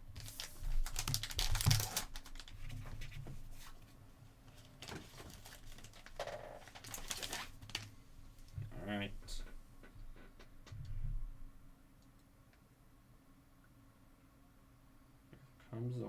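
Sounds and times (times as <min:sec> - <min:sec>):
trading cards clicking and rustling: 0:00.2 - 0:03.1, 0:04.6 - 0:07.9.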